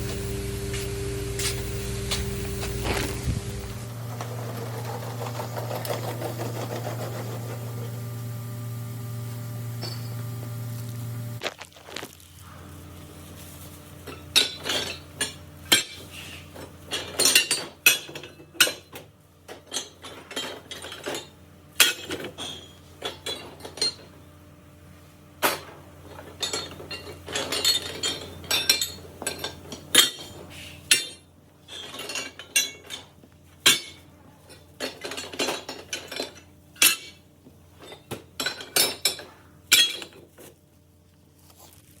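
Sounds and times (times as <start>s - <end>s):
metal tools clinking on workbench: 9.8s - 10.2s, 26.2s - 37.2s.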